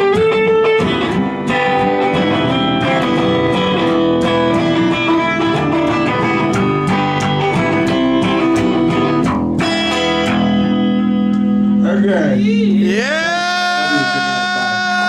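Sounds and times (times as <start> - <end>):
band playing live: 0.0 - 12.0
electric guitar: 0.0 - 15.0.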